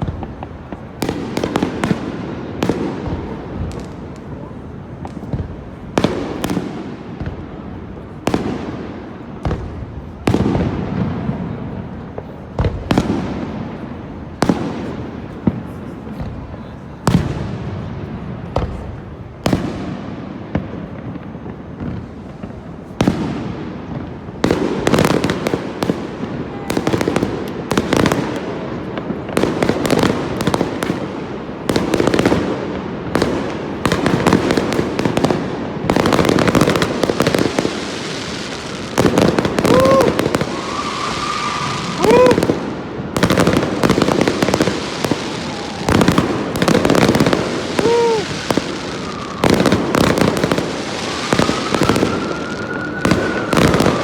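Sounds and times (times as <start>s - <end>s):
fireworks crackling: 0.0s - 54.0s
firework shells booming: 33.2s - 52.4s.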